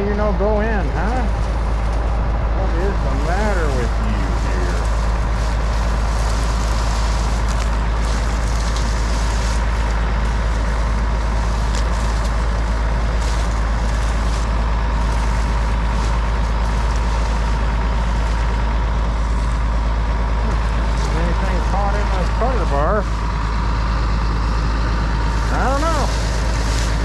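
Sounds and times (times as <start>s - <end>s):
combine engine rumbling: 0.0s - 27.0s.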